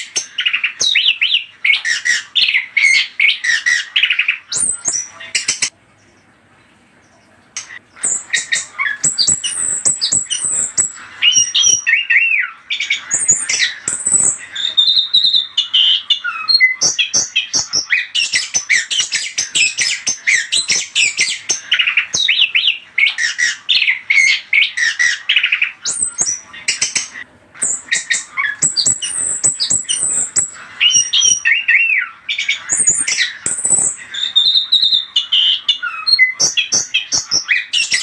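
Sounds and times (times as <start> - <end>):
thrush singing varied chirps: 7.6 - 38.0.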